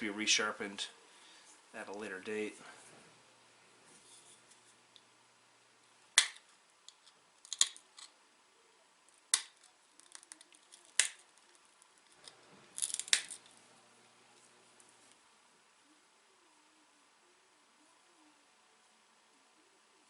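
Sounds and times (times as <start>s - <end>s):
stone flakes snapping off: 6.2s - 8.1s, 9.3s - 13.5s.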